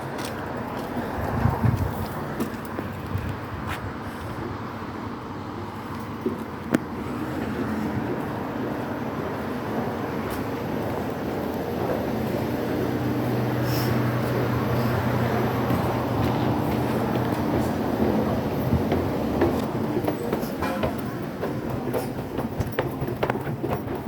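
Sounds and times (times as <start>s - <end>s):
subway train rumbling: 0.0s - 24.0s
knocks: 17.5s - 24.0s.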